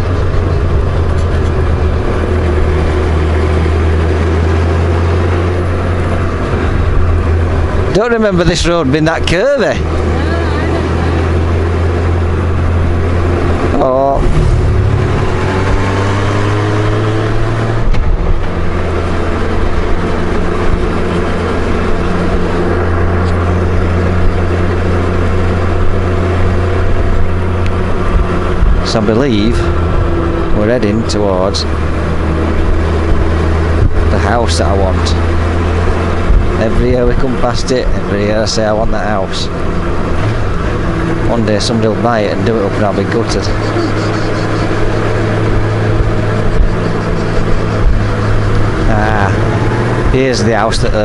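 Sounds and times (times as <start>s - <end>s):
motorcycle engine droning: 0.0s - 51.0s
road noise: 0.0s - 51.0s
wind noise: 31.7s - 34.4s, 35.2s - 37.3s, 43.4s - 51.0s.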